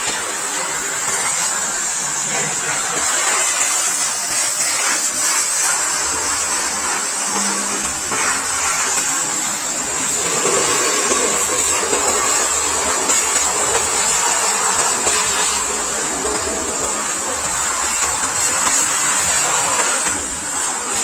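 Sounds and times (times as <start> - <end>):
pressure washer water jet hissing: 0.0 - 21.0.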